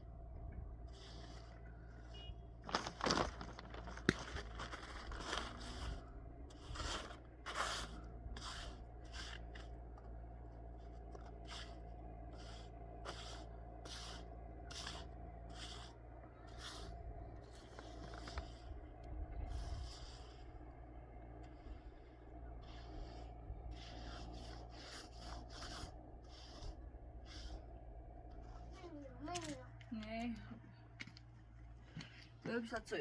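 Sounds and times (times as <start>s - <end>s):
low hum: 0.0s - 33.0s
short scraping strokes: 4.8s - 9.7s, 11.2s - 18.8s, 19.4s - 20.7s, 21.4s - 28.8s.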